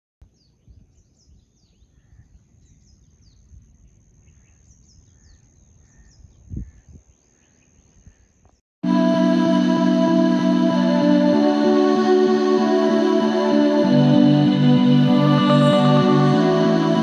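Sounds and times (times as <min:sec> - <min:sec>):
small birds chirping: 0:00.3 - 0:08.6.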